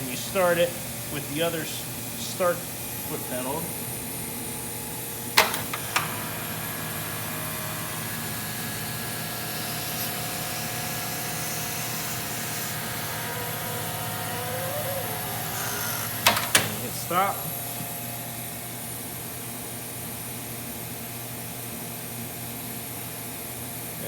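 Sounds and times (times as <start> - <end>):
hot air blower hiss: 0.0 - 19.1
motor hum: 4.9 - 19.0
machine clicks: 5.4 - 6.3, 13.6 - 16.9.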